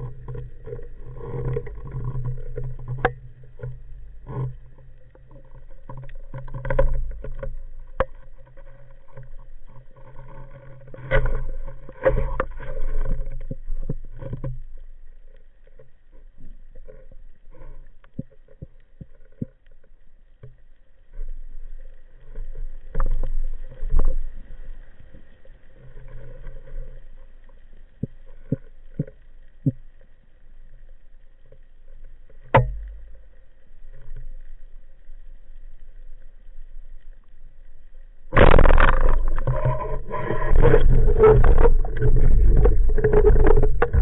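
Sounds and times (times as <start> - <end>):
low underwater rumble: 0.0 - 44.0
underwater clicks and knocks: 0.0 - 44.0
sharp crack: 38.3 - 39.7
rushing water noise: 38.3 - 44.0.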